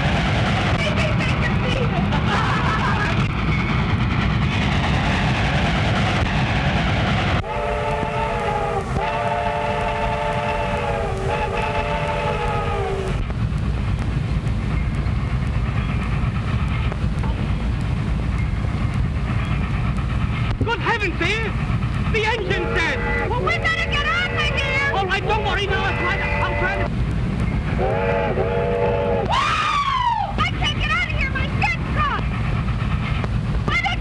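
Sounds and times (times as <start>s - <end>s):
train rumbling: 0.0s - 34.0s
train whistle blasts: 7.4s - 13.2s, 25.8s - 26.9s, 27.8s - 30.0s.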